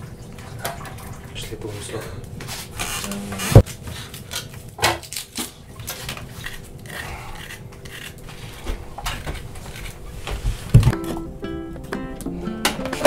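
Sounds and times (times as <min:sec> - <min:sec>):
knife scraping vegetables: 0:05.8 - 0:10.8.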